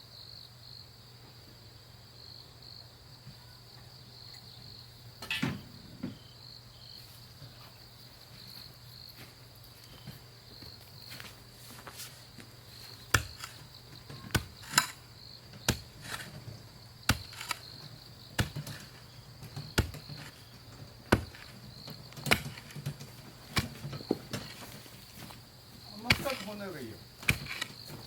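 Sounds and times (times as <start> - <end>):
high insect trill: 0.1 - 28.0
sharp knocks: 22.2 - 24.6.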